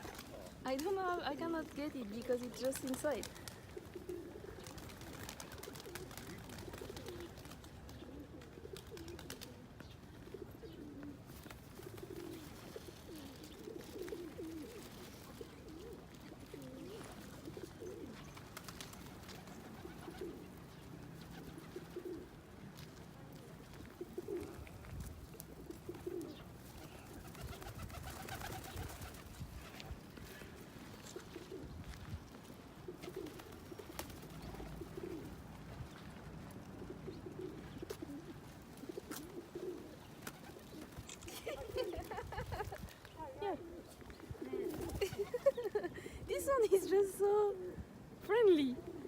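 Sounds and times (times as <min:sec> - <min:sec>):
pigeons cooing: 0:00.0 - 0:22.8, 0:23.4 - 0:32.0, 0:32.6 - 0:36.0, 0:36.6 - 0:46.2, 0:47.5 - 0:49.0.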